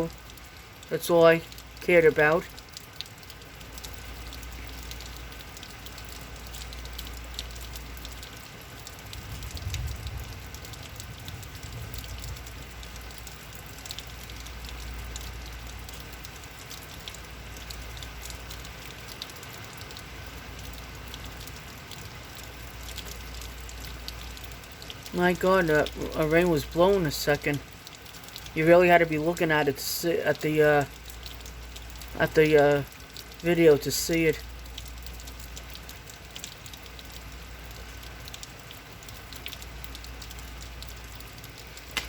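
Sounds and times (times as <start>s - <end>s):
heavy rain pattering: 0.0s - 42.0s
wind rumble: 9.1s - 12.5s.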